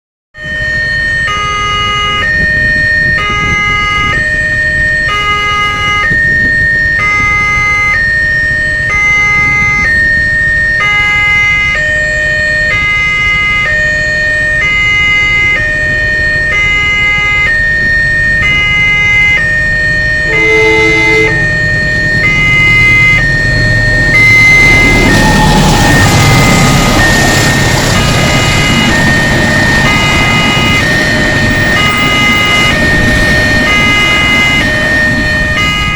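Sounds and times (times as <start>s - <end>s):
level crossing two-tone alarm: 0.4s - 35.9s
low traffic rumble: 0.4s - 35.9s
short electronic tone: 20.3s - 23.2s.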